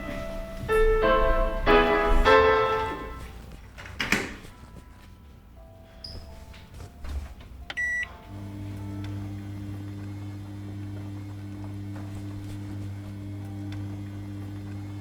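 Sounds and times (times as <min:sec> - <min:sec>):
washing machine motor humming: 0:00.0 - 0:04.7, 0:06.3 - 0:15.0
washing machine clicks: 0:02.8 - 0:04.7, 0:06.1 - 0:08.2.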